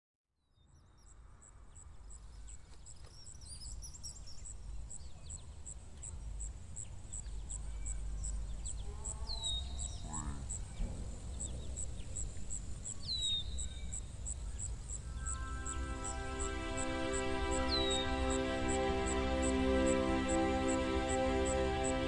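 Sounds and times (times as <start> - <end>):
low wind rumble: 4.2 - 22.0
bird chirping and twittering: 7.1 - 18.9.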